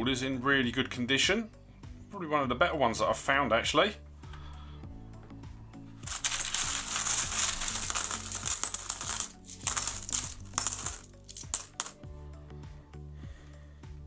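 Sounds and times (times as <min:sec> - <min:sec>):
background music: 0:00.0 - 0:14.0
coins clinking: 0:06.0 - 0:12.0.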